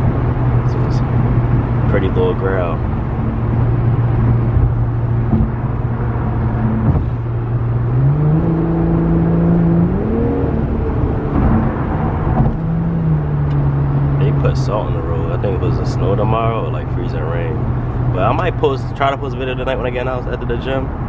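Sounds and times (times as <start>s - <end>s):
car exhaust drone and growl: 0.0s - 21.0s.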